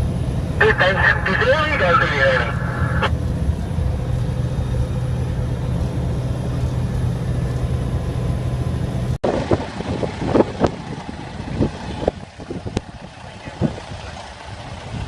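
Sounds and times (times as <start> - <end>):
truck engine droning: 0.0 - 9.2.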